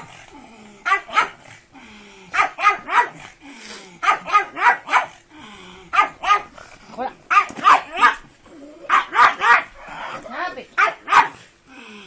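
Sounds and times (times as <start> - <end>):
dog barking: 0.8 - 1.4, 2.3 - 3.2, 4.0 - 5.2, 5.9 - 6.5, 7.3 - 8.2, 8.9 - 9.8, 10.8 - 11.4.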